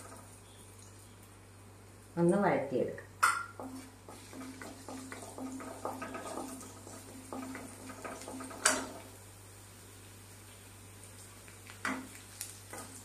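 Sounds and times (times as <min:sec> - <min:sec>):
garlic frying in oil: 0:00.0 - 0:02.4, 0:03.2 - 0:13.0
wooden spatula striking pan: 0:03.2 - 0:08.9.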